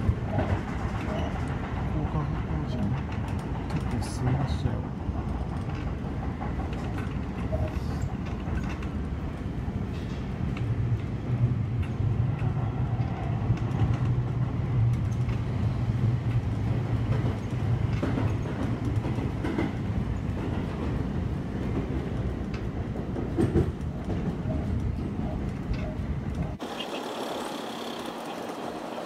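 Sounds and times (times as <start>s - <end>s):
wheel clicks over rail joints: 0.0s - 11.1s, 21.7s - 29.0s
train running hum: 0.0s - 29.0s.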